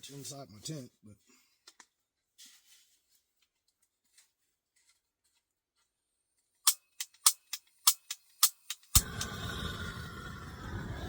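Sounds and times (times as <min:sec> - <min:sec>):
blowtorch igniter clicking: 0:07.0 - 0:11.0.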